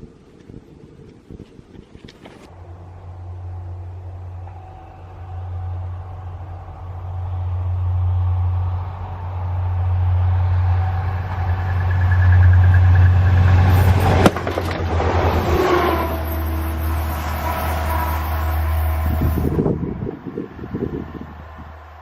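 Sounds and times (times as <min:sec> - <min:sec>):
train rumbling past: 0:02.5 - 0:22.0
sharp crack: 0:13.9 - 0:15.5.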